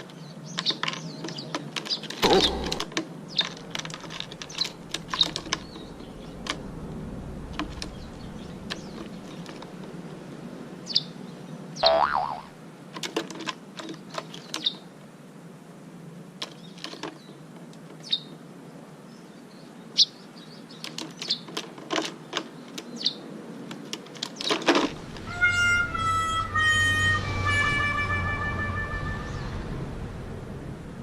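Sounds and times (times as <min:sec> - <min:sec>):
bird chirping: 0:00.2 - 0:03.5, 0:11.8 - 0:12.5, 0:29.0 - 0:29.7.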